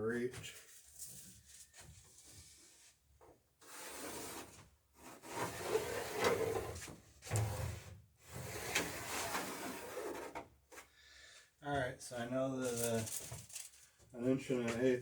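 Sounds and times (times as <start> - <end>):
wood scraping against wood: 3.6 - 7.6.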